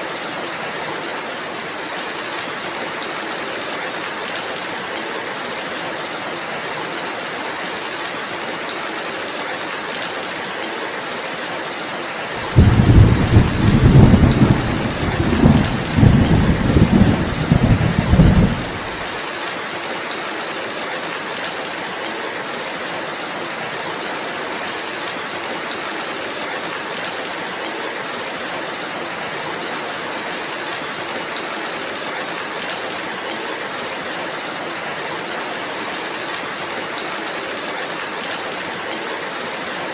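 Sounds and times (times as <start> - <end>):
steady rain falling: 0.0 - 39.9
deep rumble of thunder: 12.4 - 19.1.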